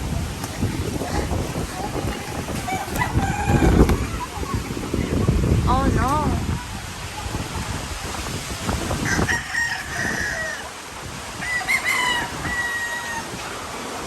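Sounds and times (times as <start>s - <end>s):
storm wind: 0.0s - 14.0s
rooster crowing: 2.6s - 4.1s, 9.0s - 13.5s.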